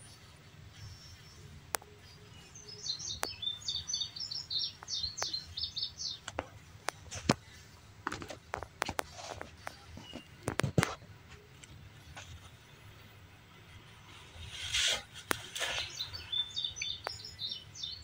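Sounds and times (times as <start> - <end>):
songbird twittering: 0.0 - 6.3, 15.3 - 18.0.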